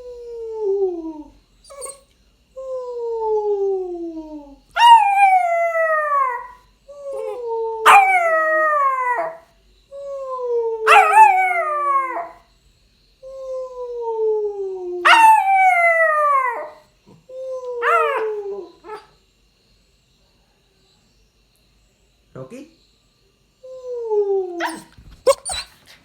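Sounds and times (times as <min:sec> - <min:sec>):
puppy howling: 0:00.0 - 0:02.0, 0:02.6 - 0:12.4, 0:13.3 - 0:19.1, 0:23.7 - 0:25.9.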